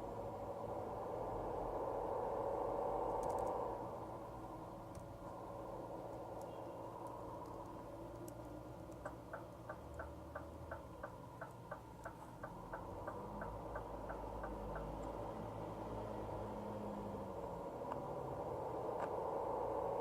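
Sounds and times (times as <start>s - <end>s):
turn signal ticking: 7.4s - 15.4s.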